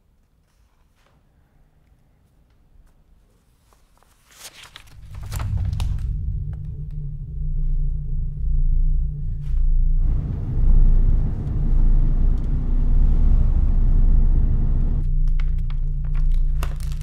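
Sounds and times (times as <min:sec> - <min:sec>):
car engine running: 0:10.0 - 0:15.0.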